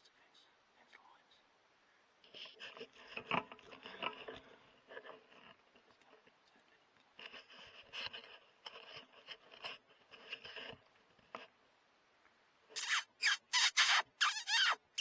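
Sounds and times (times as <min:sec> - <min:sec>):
faint scratchy rustling: 0:00.0 - 0:12.8
predator call squealing: 0:12.8 - 0:15.0.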